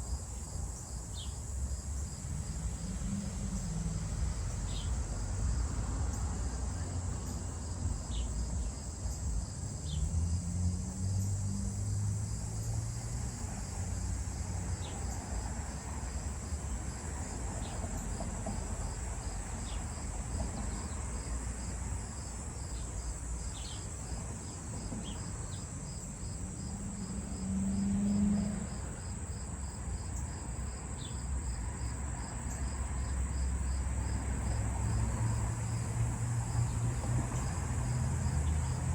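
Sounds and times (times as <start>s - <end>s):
crickets chirping: 0.0s - 38.9s
fast pulsing insect chirp: 0.1s - 18.2s.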